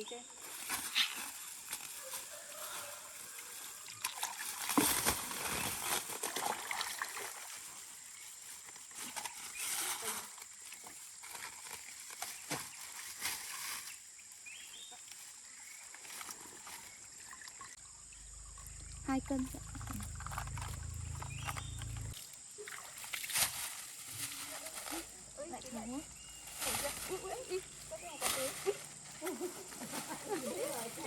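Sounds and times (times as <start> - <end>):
water splashing and sloshing: 0.5 - 8.9, 9.6 - 13.9, 15.1 - 25.7.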